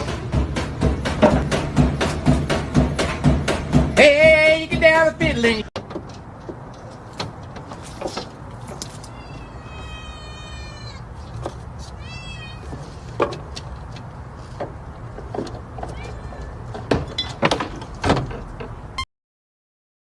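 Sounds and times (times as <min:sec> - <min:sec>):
sharp knocks: 0:00.0 - 0:04.1.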